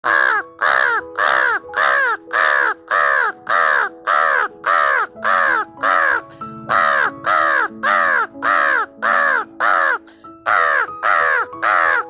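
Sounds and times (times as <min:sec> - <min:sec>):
crow cawing: 0:00.0 - 0:12.0
steady held notes: 0:05.7 - 0:09.6.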